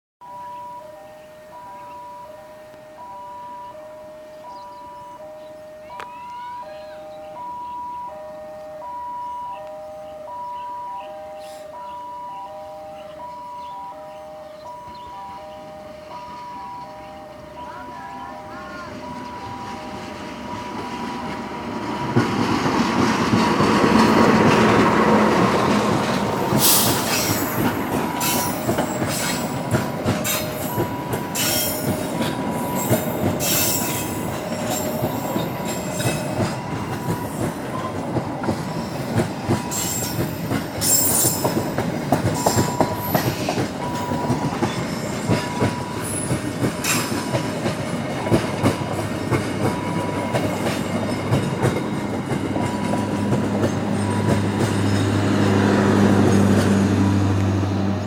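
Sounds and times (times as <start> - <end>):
faint beeping tone: 0.2 - 22.3, 28.3 - 40.3, 42.4 - 47.2, 48.1 - 51.2, 52.6 - 53.3
locomotive passing: 0.2 - 58.0
train wagons rumbling: 1.4 - 58.0
wheels clacking on rail joints: 12.9 - 58.0
wheel squeals: 26.0 - 55.2.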